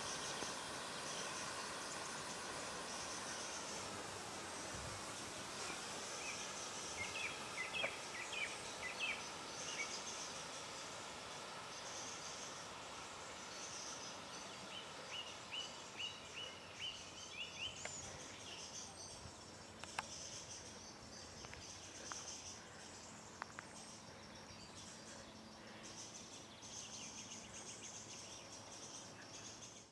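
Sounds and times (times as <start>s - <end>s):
soft steady hiss: 0.0s - 29.9s
bird chirping: 4.5s - 29.9s
faint clicks: 19.8s - 20.2s.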